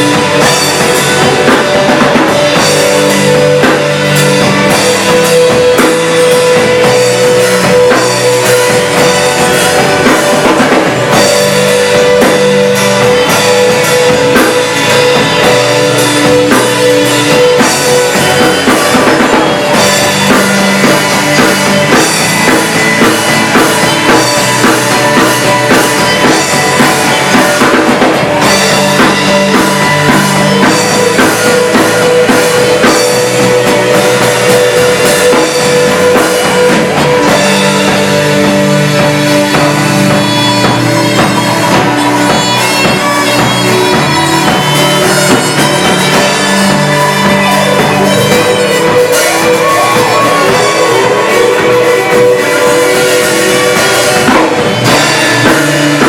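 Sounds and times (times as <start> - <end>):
band playing rock song: 0.0 - 56.0
drum kit rock beat: 0.0 - 56.0.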